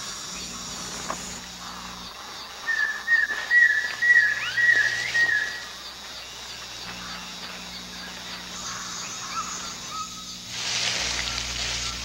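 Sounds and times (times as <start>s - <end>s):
insect chirring: 0.0s - 12.0s
warbling whistled bird call: 2.6s - 5.8s, 8.7s - 10.4s.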